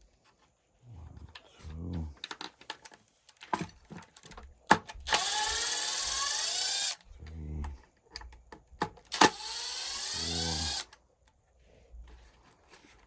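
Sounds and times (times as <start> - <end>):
power drill whining: 5.0 - 7.0, 9.1 - 10.9.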